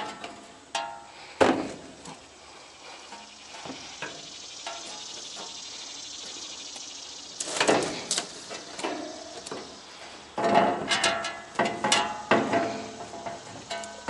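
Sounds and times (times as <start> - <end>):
metal parts clanking and rattling: 10.4 - 14.0.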